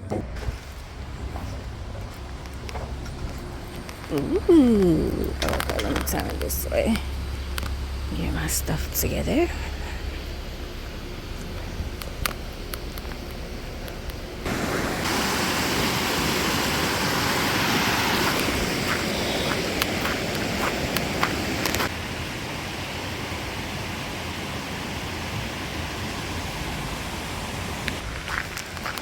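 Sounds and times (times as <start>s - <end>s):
running water rushing: 9.2s - 29.0s.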